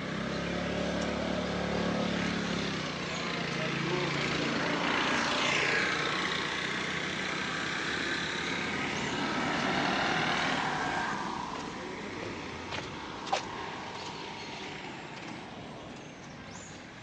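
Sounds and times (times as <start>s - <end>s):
motor vehicle passing: 0.0s - 17.0s.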